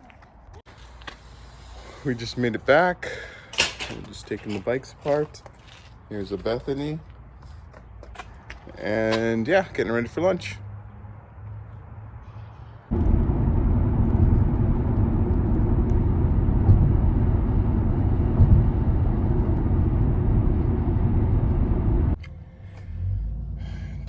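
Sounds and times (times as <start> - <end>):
car road and wind noise: 12.9 - 24.0.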